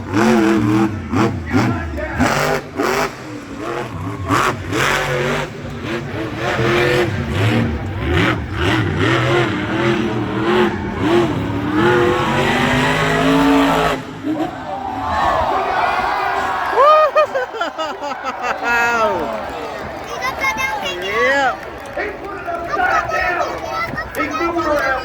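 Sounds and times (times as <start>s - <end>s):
truck engine revving hard: 0.0s - 15.6s.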